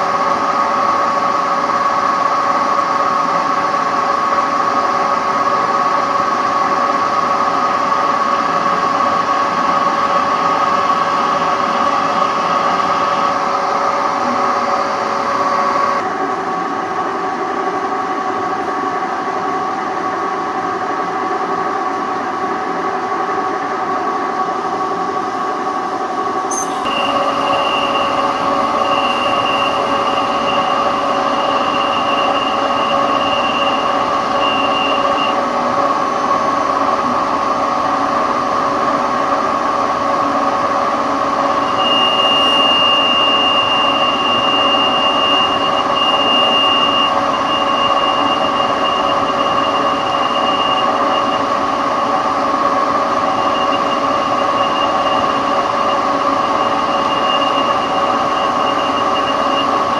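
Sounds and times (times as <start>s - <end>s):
high machine whine: 0.0s - 59.9s
machine tool running: 26.5s - 35.5s.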